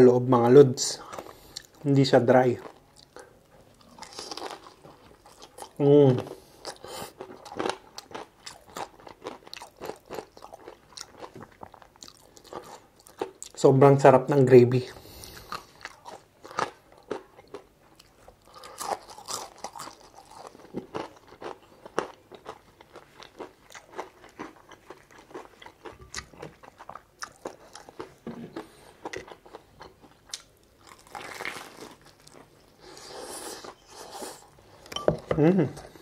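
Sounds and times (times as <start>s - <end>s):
crunching crispy fried chicken: 18.4s - 28.1s, 30.4s - 32.6s.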